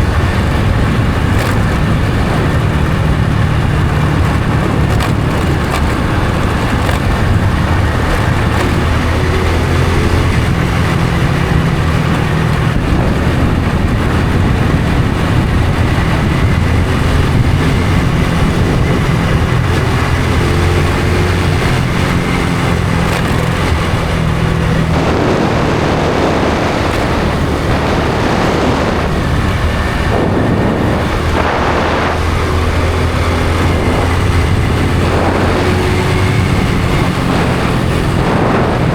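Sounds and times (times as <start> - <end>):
motorcycle engine cruising: 0.0 - 38.9
rushing noise: 21.8 - 38.9.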